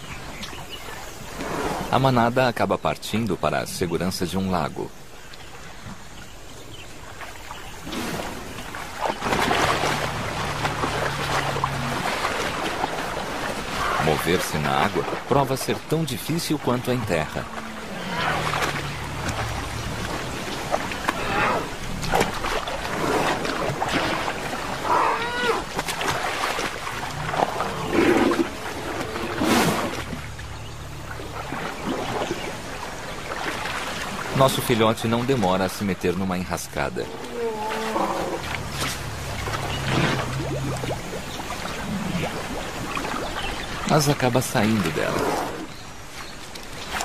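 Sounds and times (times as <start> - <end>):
water splashing and sloshing: 0.0 - 47.0
elephant calling: 9.2 - 15.2, 16.5 - 22.0, 22.9 - 25.8, 36.9 - 40.4.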